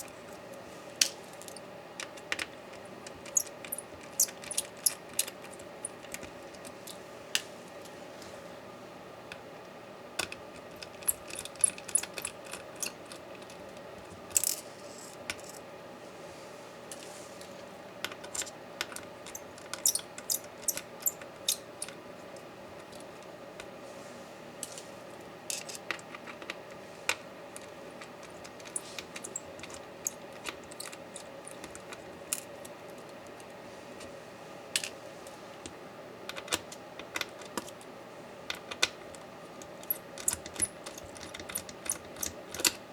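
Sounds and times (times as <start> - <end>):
steady background hum: 0.0 - 42.9
small metal parts clicking: 1.4 - 7.0, 10.2 - 13.6, 18.0 - 22.0, 25.5 - 32.7, 39.6 - 42.8.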